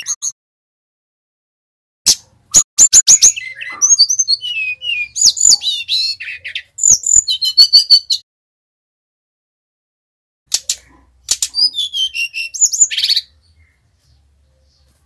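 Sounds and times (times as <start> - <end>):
bird singing chips and whistles: 0.0 - 0.4, 2.1 - 8.2, 10.5 - 13.3.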